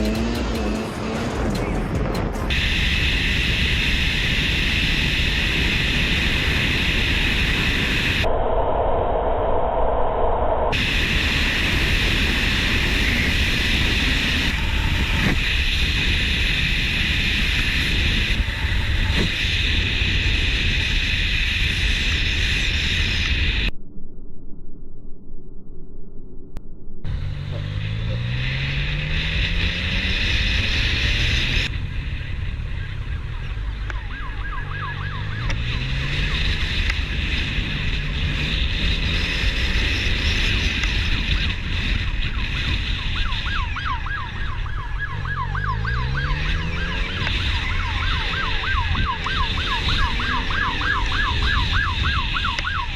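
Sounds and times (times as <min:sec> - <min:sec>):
engine rising in pitch: 0:00.0 - 0:08.3, 0:27.0 - 0:52.9
wind and road noise: 0:00.0 - 0:23.8, 0:26.9 - 0:52.9
warbling siren: 0:02.5 - 0:52.9.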